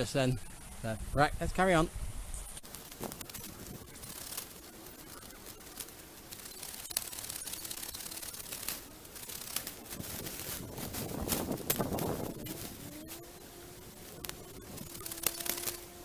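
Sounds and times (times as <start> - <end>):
branches rustling and snapping: 2.6 - 16.0.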